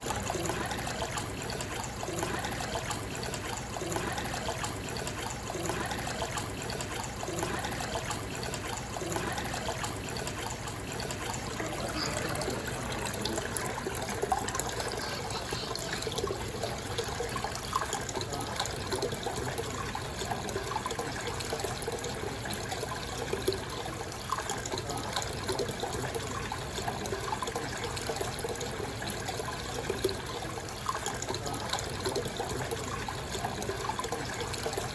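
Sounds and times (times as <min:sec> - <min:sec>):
aquarium water trickling: 0:00.0 - 0:34.9
air bubbles popping: 0:07.4 - 0:19.9.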